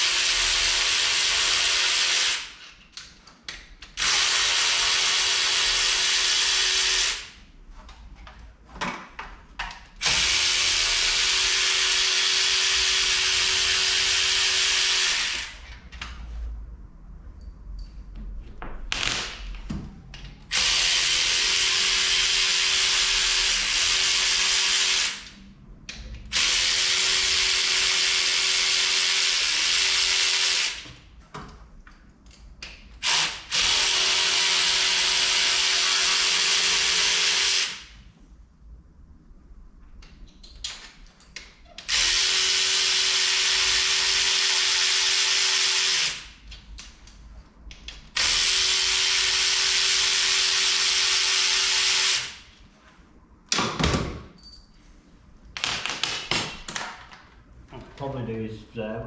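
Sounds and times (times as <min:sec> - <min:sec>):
power drill running: 0:00.0 - 0:02.6, 0:04.0 - 0:07.4, 0:10.0 - 0:15.6, 0:20.5 - 0:25.3, 0:26.3 - 0:30.8, 0:33.0 - 0:37.9, 0:41.9 - 0:46.4, 0:48.2 - 0:52.5.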